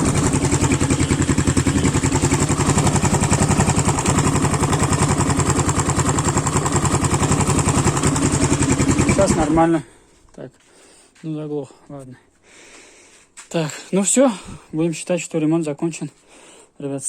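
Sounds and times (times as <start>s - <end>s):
dirt bike engine idling: 0.0s - 9.8s.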